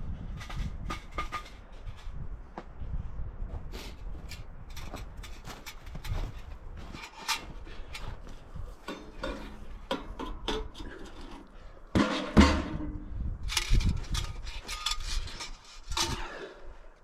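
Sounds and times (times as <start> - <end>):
metal pipes clanking and rattling: 0.4 - 2.1, 4.2 - 8.2, 8.8 - 16.5.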